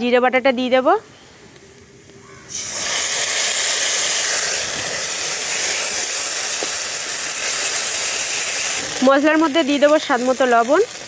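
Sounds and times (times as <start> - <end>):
paste sizzling in hot oil: 2.5 - 11.0.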